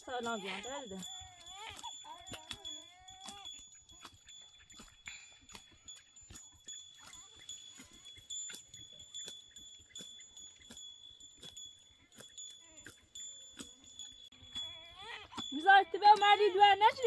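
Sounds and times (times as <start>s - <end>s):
faint animals bleating: 0.0s - 3.6s, 14.5s - 16.9s.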